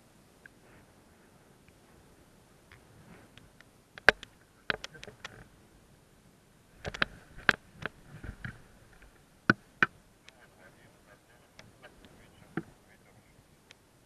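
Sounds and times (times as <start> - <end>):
sharp clicks and knocks: 4.0 - 5.4, 6.8 - 10.0.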